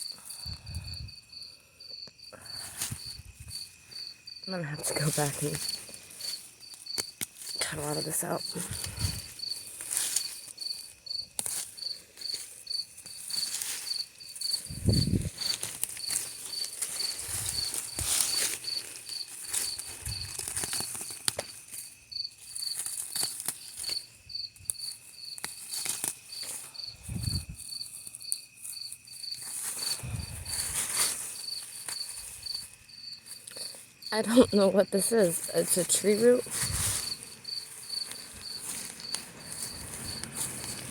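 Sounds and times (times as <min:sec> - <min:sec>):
cricket chirping: 0:00.0 - 0:40.9
rustling and scraping: 0:02.4 - 0:40.9.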